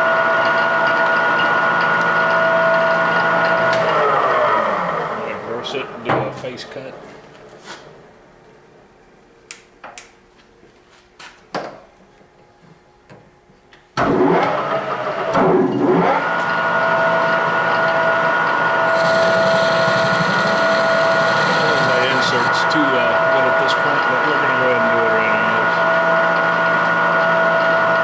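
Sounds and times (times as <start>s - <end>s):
lathe spindle whine: 0.0s - 6.1s, 14.3s - 28.0s.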